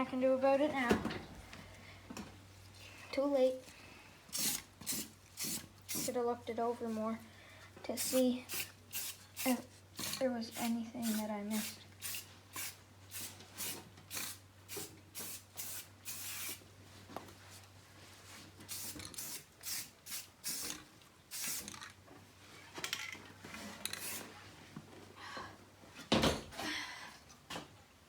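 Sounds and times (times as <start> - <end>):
spray paint can bursts: 4.4 - 6.1, 8.0 - 16.6, 18.7 - 21.8, 24.0 - 24.2.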